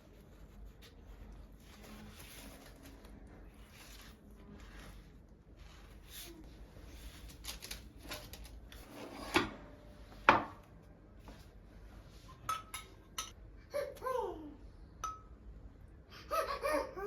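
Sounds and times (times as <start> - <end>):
dishes and cutlery clinking: 12.4 - 13.4.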